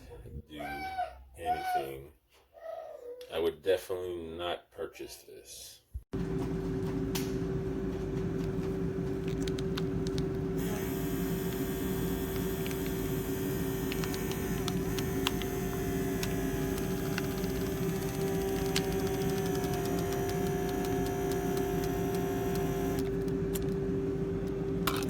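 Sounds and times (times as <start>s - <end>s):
low electrical hum: 6.2s - 25.0s.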